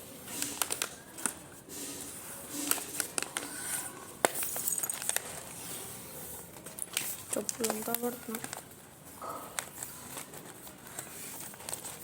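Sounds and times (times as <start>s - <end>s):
foil and tape crinkling: 6.5s - 8.8s, 9.5s - 12.0s.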